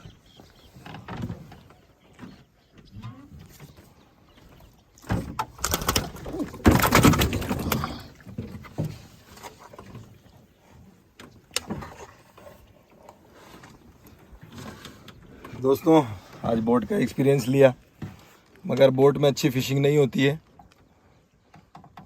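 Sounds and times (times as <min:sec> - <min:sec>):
water splashing around rowboat: 0:00.0 - 0:22.0
boat knocks: 0:04.5 - 0:10.2.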